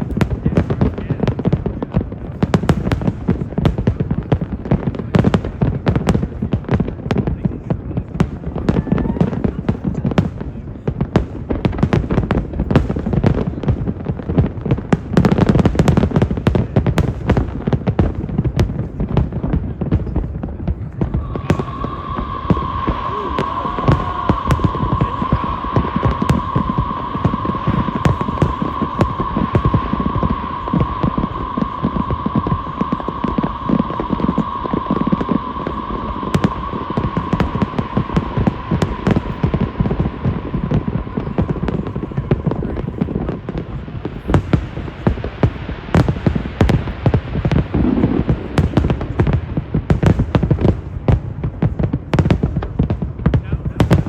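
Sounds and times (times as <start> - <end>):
fireworks bangs and crackling: 0.0 - 54.0
steady high hum: 20.9 - 45.8.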